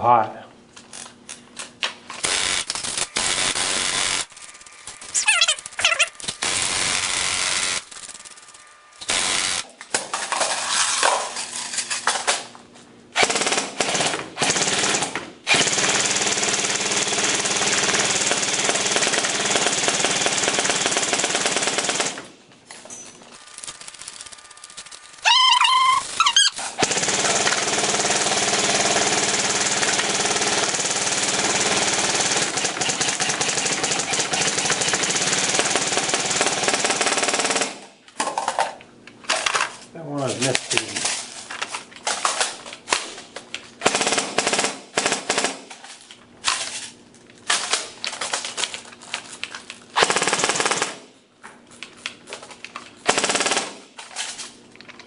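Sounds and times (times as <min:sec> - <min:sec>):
airsoft gun full-auto bursts: 0:02.2 - 0:09.7, 0:13.2 - 0:22.3, 0:23.4 - 0:37.9, 0:43.8 - 0:45.7, 0:50.0 - 0:51.1, 0:53.1 - 0:53.9.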